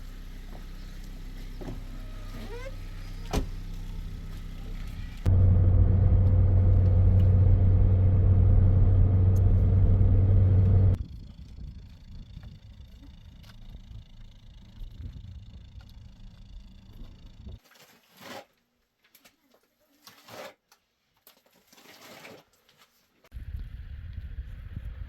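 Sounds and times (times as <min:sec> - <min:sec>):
low mechanical rumble: 0:00.0 - 0:17.6.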